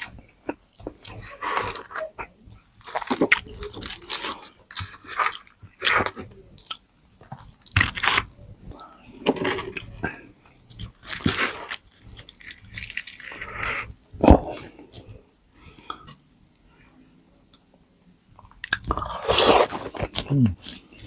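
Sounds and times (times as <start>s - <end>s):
crunching and chewing crispy food: 0.0s - 2.2s, 2.8s - 8.4s, 9.1s - 15.2s, 18.3s - 21.0s.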